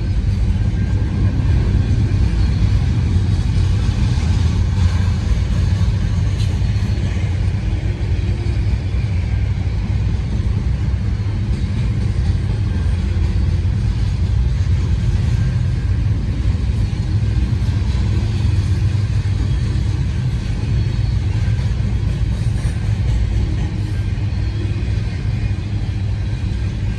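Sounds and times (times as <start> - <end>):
freight train rumbling past: 0.0 - 26.9.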